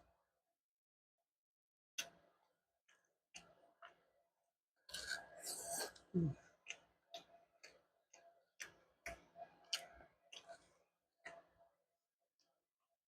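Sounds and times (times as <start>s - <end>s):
chewing and mouth clicks: 4.9s - 7.7s, 9.0s - 11.4s.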